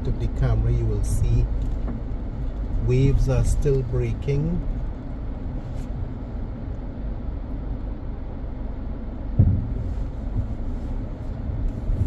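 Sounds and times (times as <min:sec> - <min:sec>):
car road and engine rumble: 0:00.0 - 0:12.0
low thump: 0:09.3 - 0:10.6.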